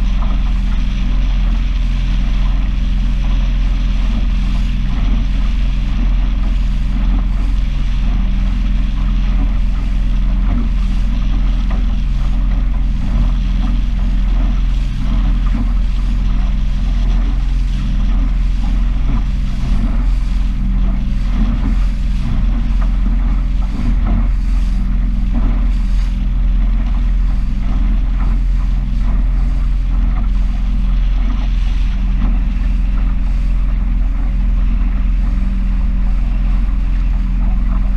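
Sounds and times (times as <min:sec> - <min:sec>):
powerboat engine running: 0:00.0 - 0:37.9
water splashing against hull: 0:00.0 - 0:37.9.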